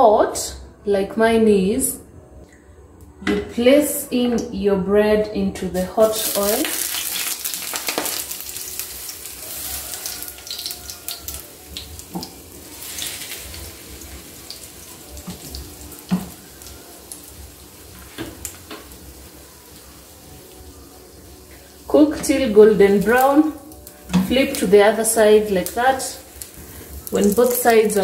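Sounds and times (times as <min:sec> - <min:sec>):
food sizzling in oil: 0:06.0 - 0:28.0.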